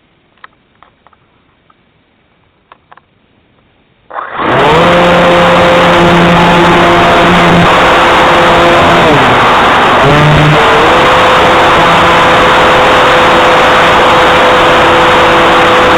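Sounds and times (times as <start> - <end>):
faint clicks: 0.3 - 1.8, 2.6 - 3.7
airplane engine and propeller drone: 4.3 - 15.9.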